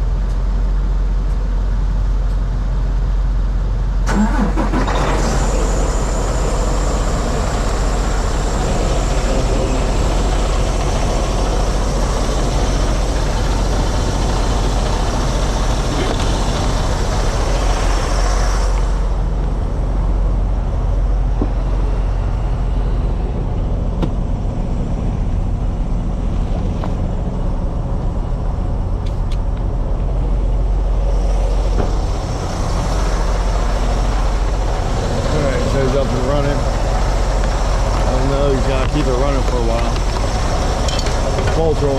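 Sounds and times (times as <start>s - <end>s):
truck diesel engine idling: 0.0s - 41.9s
hiss: 4.1s - 19.2s.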